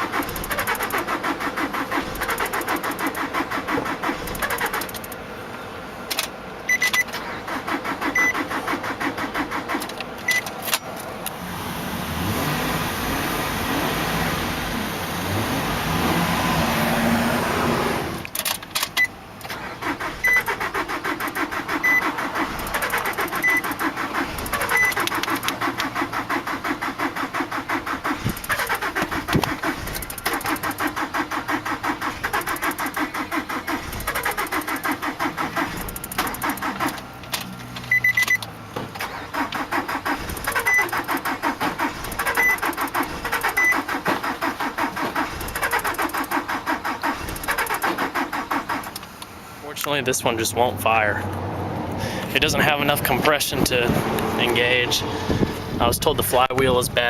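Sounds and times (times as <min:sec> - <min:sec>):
starter motor cranking engine: 0:00.0 - 0:05.2, 0:06.2 - 0:10.8, 0:18.2 - 0:49.3.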